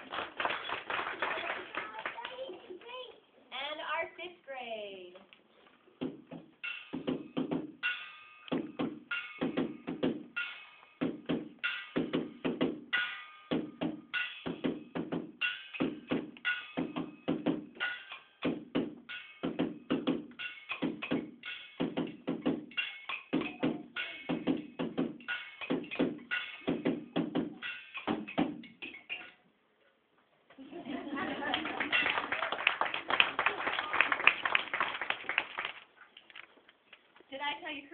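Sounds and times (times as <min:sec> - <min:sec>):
children playing found object percussion: 0:06.0 - 0:29.4, 0:30.8 - 0:32.5.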